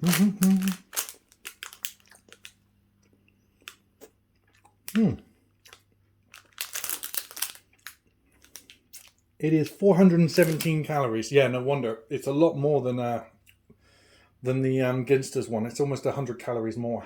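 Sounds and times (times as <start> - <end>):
food packaging crinkling: 0.0 - 2.6, 4.5 - 9.2, 10.2 - 11.0.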